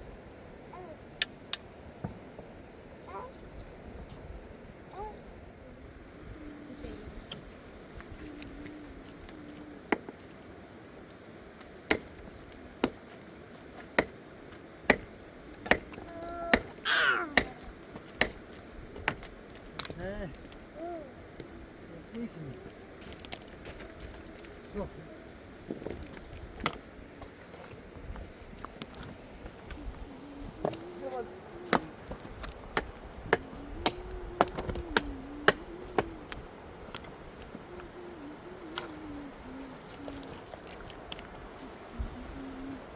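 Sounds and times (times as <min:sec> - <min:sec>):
sharp chopping strikes: 0:11.9 - 0:12.2, 0:12.8 - 0:13.0, 0:14.0 - 0:14.2, 0:14.9 - 0:18.4.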